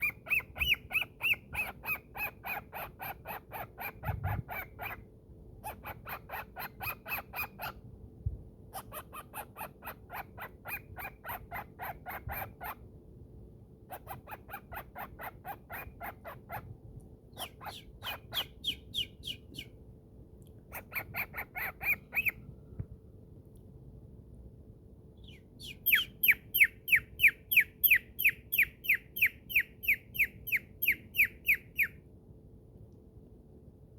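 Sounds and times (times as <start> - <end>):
cockatiel chattering: 0.0 - 7.8, 8.8 - 12.8, 13.9 - 16.7, 17.4 - 19.7, 20.7 - 22.4, 25.6 - 32.0.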